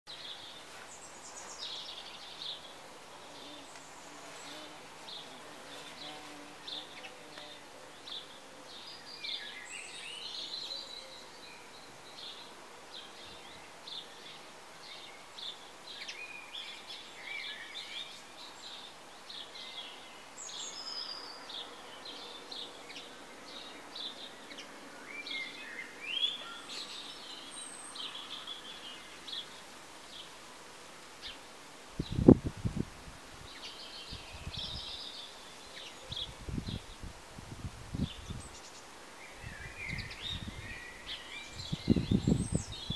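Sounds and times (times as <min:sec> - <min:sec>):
steady outdoor hiss: 0:00.1 - 0:42.9
birds chirping and whistling: 0:38.0 - 0:42.9.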